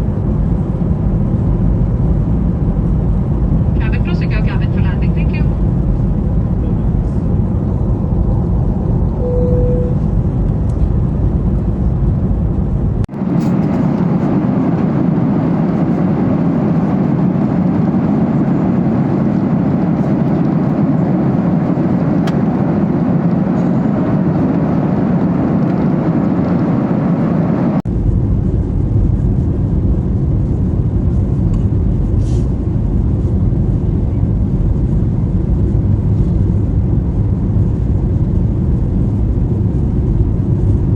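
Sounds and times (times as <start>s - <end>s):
aircraft cabin noise: 0.1s - 27.8s
short steady tone: 9.2s - 10.1s.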